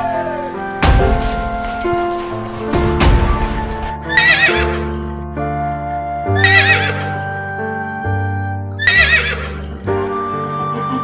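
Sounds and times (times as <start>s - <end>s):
background music: 0.0s - 11.0s
horse whinnying: 3.7s - 5.0s, 6.4s - 7.2s, 8.8s - 9.8s.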